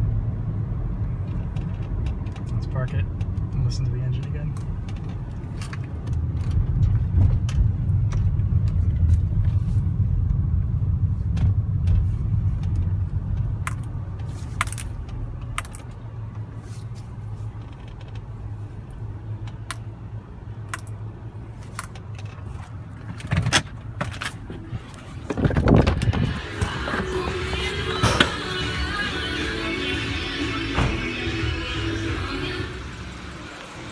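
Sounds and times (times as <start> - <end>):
car engine and road drone: 0.0 - 33.9.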